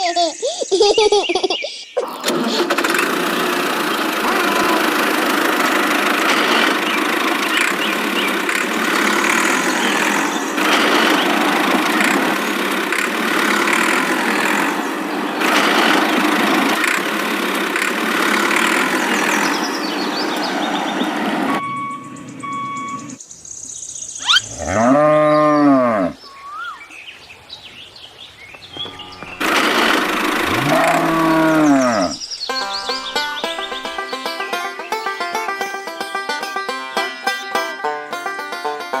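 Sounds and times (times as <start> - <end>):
small motor running: 2.2 - 20.1, 29.0 - 32.2
short beeps: 21.6 - 23.2.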